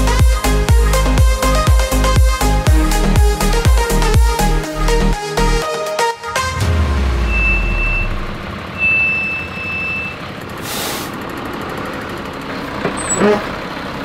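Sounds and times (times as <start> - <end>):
truck engine running: 0.0 - 5.6, 6.2 - 14.0
reversing alarm beeps: 7.2 - 10.2
air brake hiss: 10.6 - 11.2.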